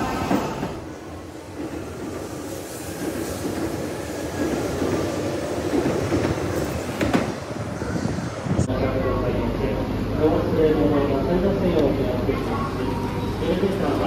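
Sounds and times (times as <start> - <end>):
train wheels rumbling on rail: 0.0 - 8.7.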